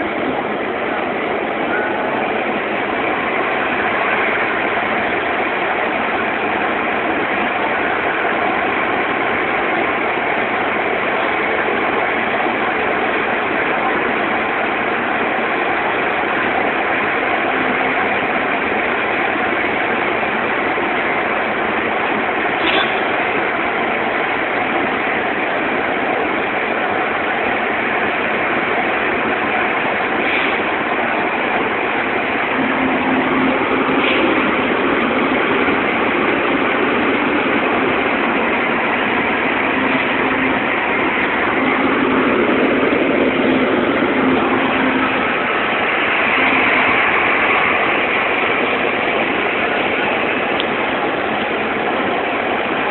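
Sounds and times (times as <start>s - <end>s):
heavy rain and road noise: 0.0s - 52.9s
low engine hum: 30.0s - 52.9s.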